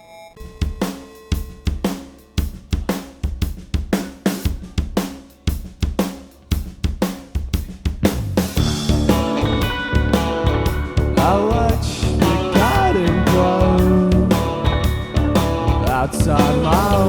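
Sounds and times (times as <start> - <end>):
drum kit steady beat: 0.4 - 17.0
low bass notes: 8.0 - 17.0
guitars sustained chords: 8.6 - 17.0.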